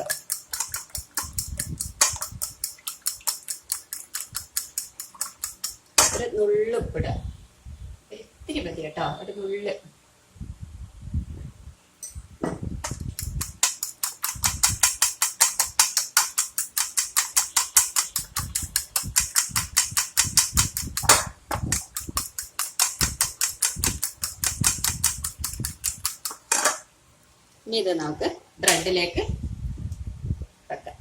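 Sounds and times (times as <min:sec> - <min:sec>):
whisk clicking against bowl: 0:00.0 - 0:06.0, 0:13.0 - 0:26.5.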